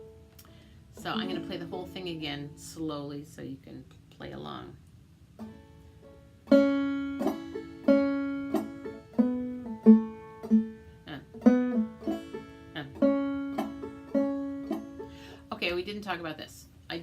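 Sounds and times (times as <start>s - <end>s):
banjo picked notes: 0.0s - 2.6s, 5.4s - 15.6s.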